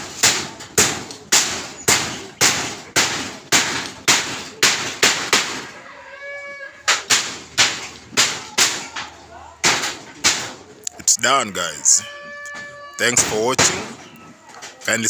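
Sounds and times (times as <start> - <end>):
hammer blows: 11.1 - 14.0.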